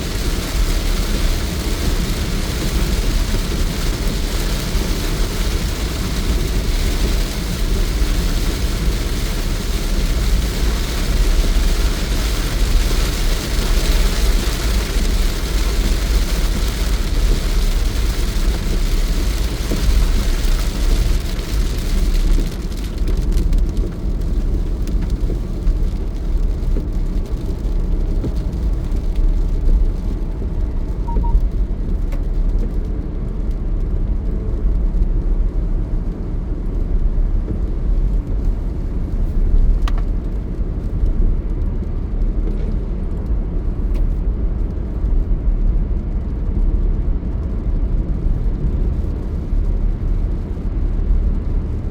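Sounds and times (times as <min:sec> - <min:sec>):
road hiss: 0:00.0 - 0:22.1
car road and engine rumble: 0:00.0 - 0:51.9.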